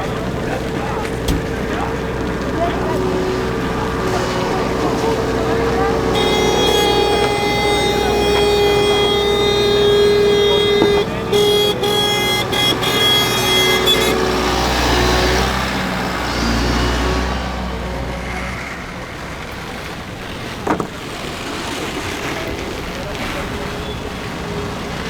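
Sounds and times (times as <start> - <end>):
steady pitched tone: 0.0 - 17.3
vehicle engine passing: 0.0 - 20.6.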